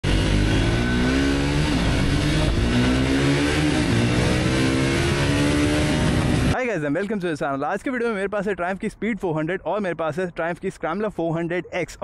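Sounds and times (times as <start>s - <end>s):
motorcycle engine accelerating: 0.0s - 6.6s.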